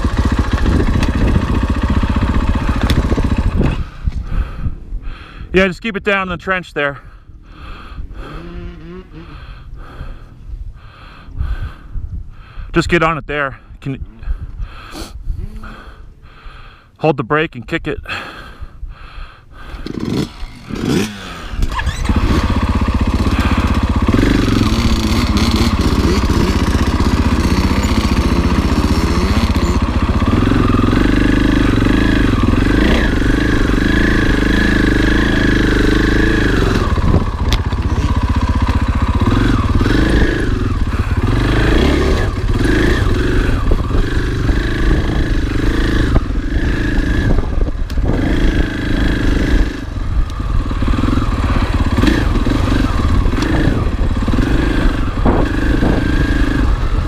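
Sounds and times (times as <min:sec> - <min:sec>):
engine clattering: 0:00.0 - 0:03.8, 0:19.8 - 0:57.0
motorcycle engine revving: 0:00.0 - 0:04.1, 0:08.2 - 0:10.0, 0:19.6 - 0:57.0.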